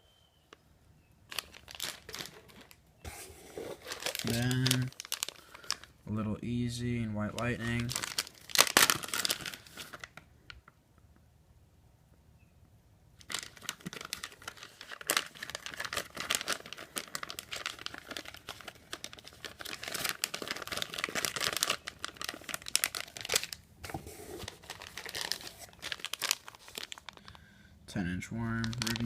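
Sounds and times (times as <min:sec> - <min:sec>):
plastic packaging crinkling: 0:01.3 - 0:06.0, 0:07.2 - 0:10.3, 0:13.2 - 0:27.4, 0:28.3 - 0:29.0.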